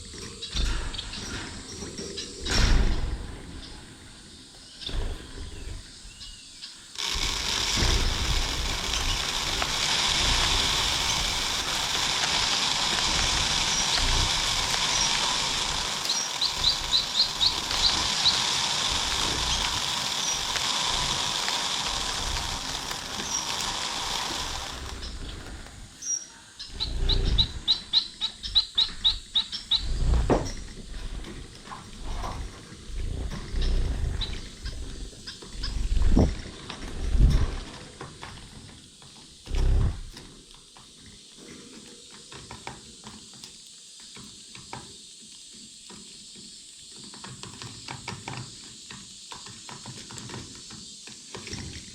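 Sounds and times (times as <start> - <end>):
finches trilling: 0.0 - 37.6
low knocks and flutters: 7.0 - 26.0, 26.7 - 38.4, 39.5 - 40.2
steady rushing noise: 7.0 - 37.8, 39.5 - 40.2.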